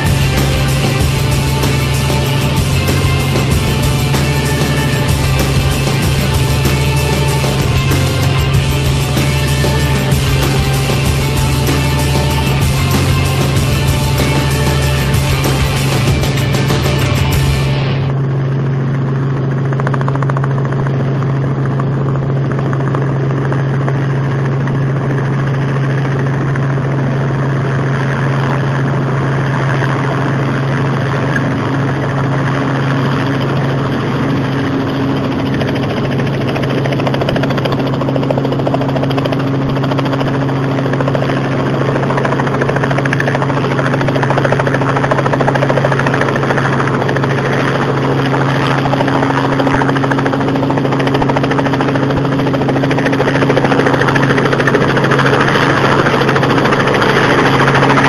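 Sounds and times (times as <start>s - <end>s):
high steady tone: 0.0s - 18.4s
broad rushing noise: 0.0s - 19.2s, 28.3s - 58.0s
helicopter rotor and engine drone: 0.0s - 58.0s.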